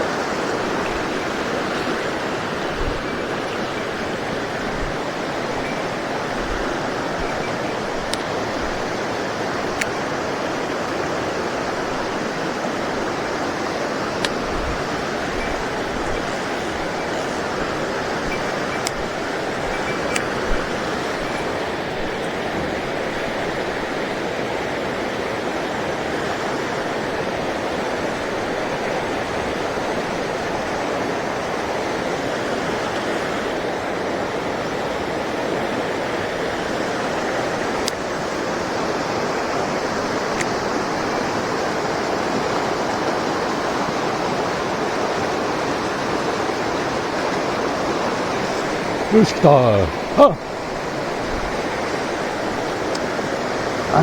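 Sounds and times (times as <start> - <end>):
mountain stream rushing: 0.0 - 54.0
faint ticks: 4.5 - 9.0, 14.1 - 22.4.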